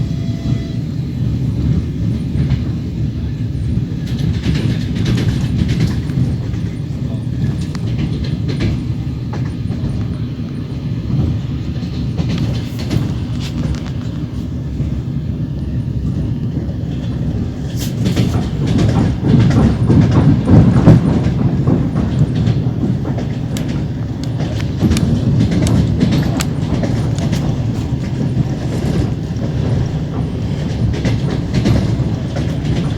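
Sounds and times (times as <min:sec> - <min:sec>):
train wheels clattering on rails: 0:00.0 - 0:32.9.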